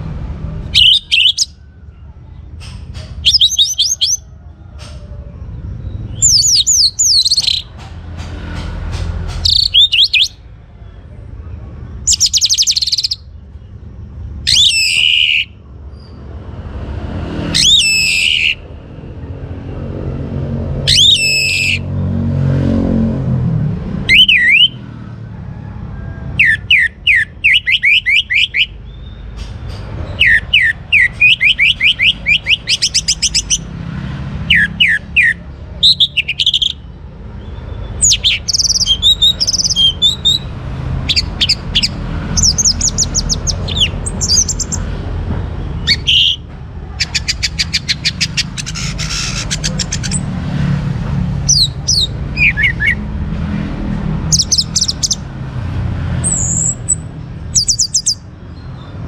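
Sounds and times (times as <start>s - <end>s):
thrush singing: 0.5s - 1.6s, 9.3s - 10.5s, 24.0s - 25.2s, 26.3s - 28.8s, 30.1s - 55.3s.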